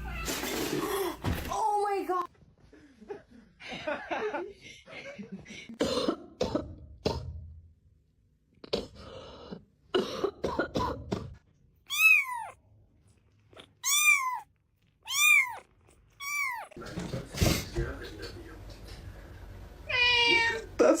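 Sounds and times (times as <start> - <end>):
person coughing: 5.8 - 7.2, 9.9 - 11.3
cat meowing: 11.9 - 12.6, 13.6 - 16.8.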